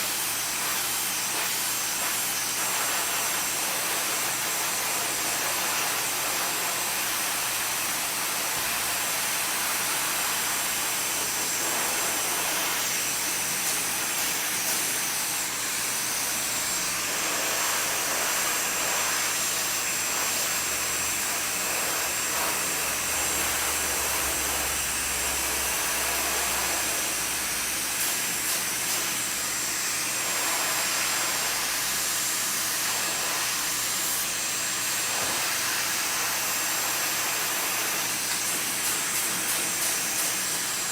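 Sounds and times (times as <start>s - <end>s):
hair dryer blowing: 0.0s - 40.9s.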